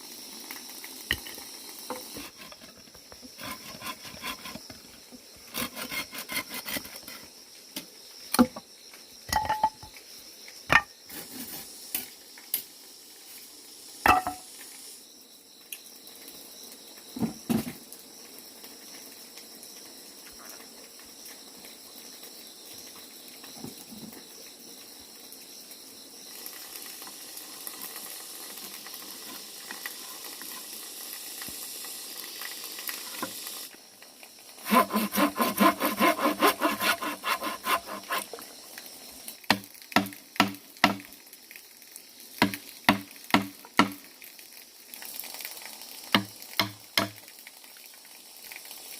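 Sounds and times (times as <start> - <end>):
steady hiss: 0.0 - 48.9
high insect chirring: 0.1 - 11.1, 25.0 - 33.8, 34.4 - 41.1.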